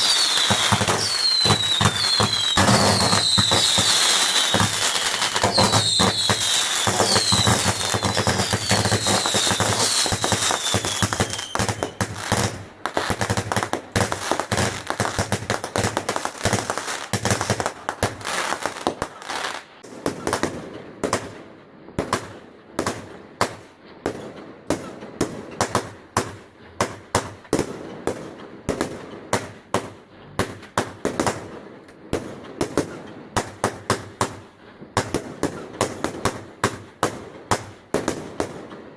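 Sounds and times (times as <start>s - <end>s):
falling firework whistles: 0.0s - 13.4s
sharp firework bangs: 0.0s - 18.3s
fireworks crackling: 0.0s - 21.5s, 22.1s - 38.9s.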